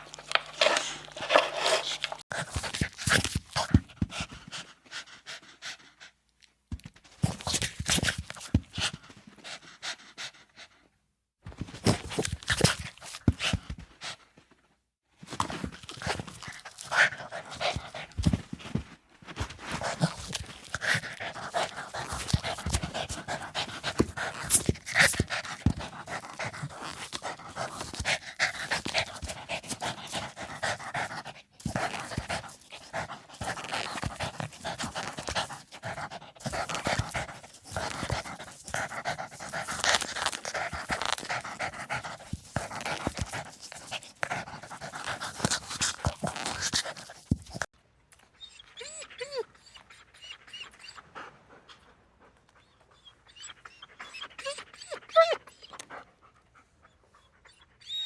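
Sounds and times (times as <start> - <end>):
dog panting rapidly: 2.3 - 6.2, 15.4 - 47.7.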